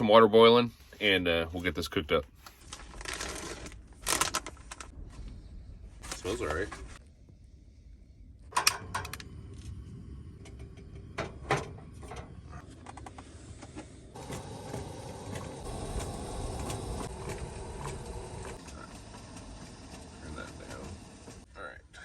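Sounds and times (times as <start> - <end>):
gas stove burner hissing: 8.5 - 21.5.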